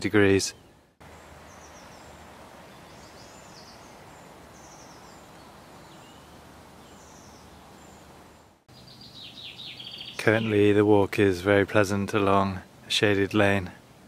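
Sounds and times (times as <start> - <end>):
small birds chirping: 0.0 - 10.8
faint steady hiss: 0.0 - 14.0
bird singing downward notes: 0.4 - 10.7.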